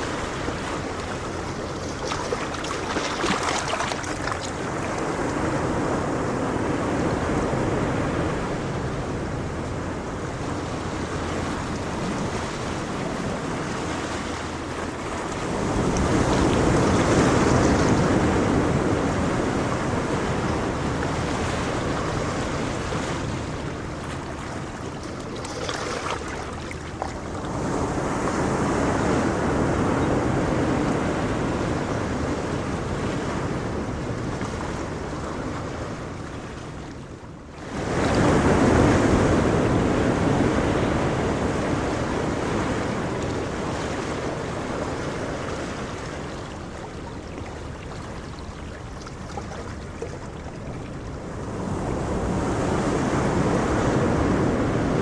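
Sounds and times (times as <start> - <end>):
ocean waves rolling in: 0.0 - 55.0.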